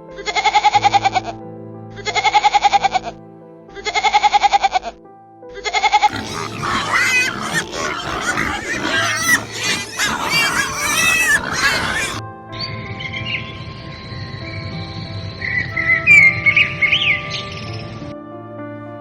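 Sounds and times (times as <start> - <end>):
farm animals squealing: 6.1 - 12.2.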